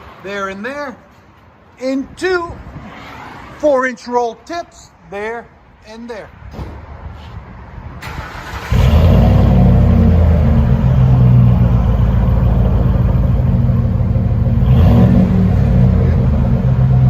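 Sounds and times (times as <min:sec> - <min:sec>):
engine exhaust idling: 0:08.7 - 0:17.0.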